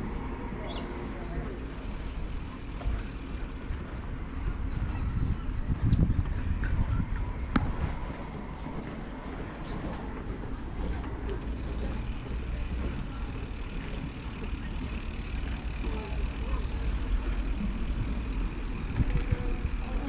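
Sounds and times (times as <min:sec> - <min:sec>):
bicycle road noise: 0:00.0 - 0:20.0
wind rumble on microphone: 0:01.7 - 0:13.6, 0:16.8 - 0:20.0.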